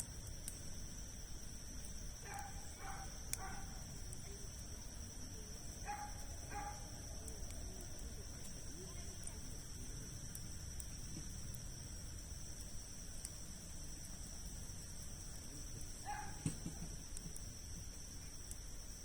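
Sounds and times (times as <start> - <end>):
campfire crackling: 0.0 - 19.0
high insect trill: 0.0 - 19.0
dog barking: 2.2 - 3.8, 5.8 - 6.9, 16.0 - 16.4.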